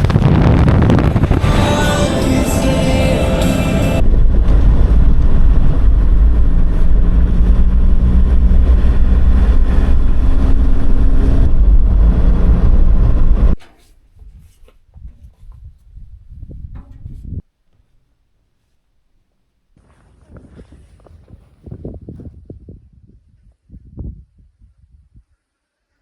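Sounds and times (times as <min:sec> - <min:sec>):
engine and road rumble: 0:00.0 - 0:13.6.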